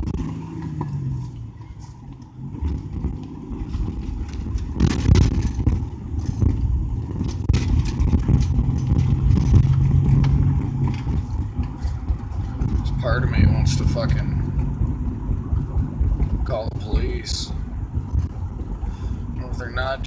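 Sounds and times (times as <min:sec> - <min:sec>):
car engine and tyre noise: 0:00.0 - 0:20.0.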